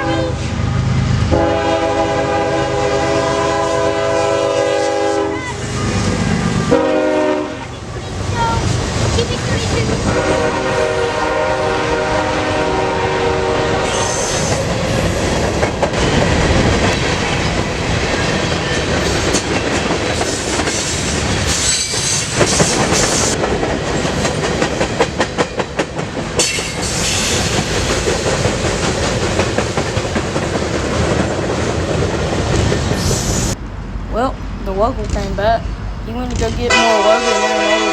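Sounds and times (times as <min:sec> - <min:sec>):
locomotive horn: 0:00.0 - 0:00.6, 0:01.3 - 0:07.7, 0:10.1 - 0:14.5, 0:36.6 - 0:37.9
high-pitched wheel squeal: 0:21.5 - 0:23.3.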